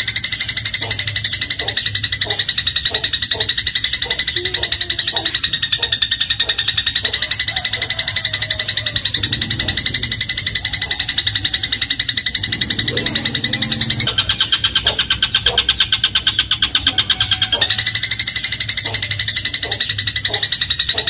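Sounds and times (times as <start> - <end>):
sparrow rapid chatter: 0.0 - 21.0.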